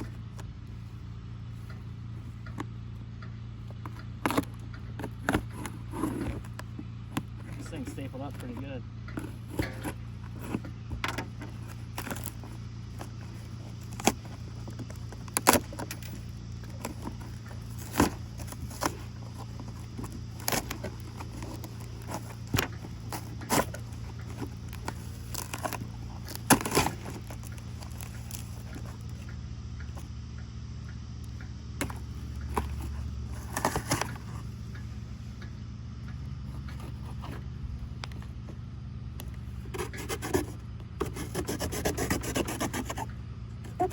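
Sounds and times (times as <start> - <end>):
steady low hum: 0.0 - 43.9
package being torn open: 16.8 - 28.6.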